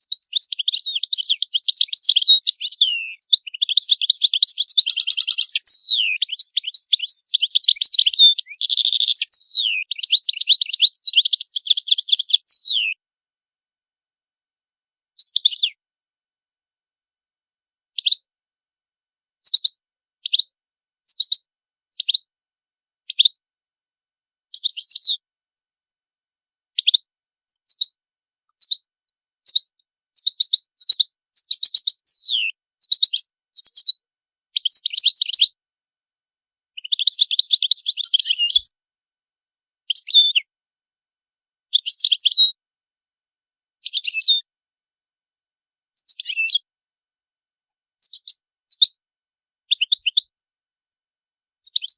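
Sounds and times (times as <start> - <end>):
goldfinch twittering and trilling: 0.0 - 13.0, 15.2 - 15.8, 18.0 - 18.2, 19.4 - 20.5, 21.1 - 21.4, 22.0 - 22.2, 24.6 - 25.2, 26.8 - 27.0, 27.6 - 27.9, 30.2 - 33.9, 34.6 - 35.6, 36.8 - 38.7, 39.9 - 40.5, 41.7 - 42.6, 43.8 - 44.4, 46.0 - 46.6, 48.0 - 48.9, 49.7 - 50.3, 51.6 - 51.9.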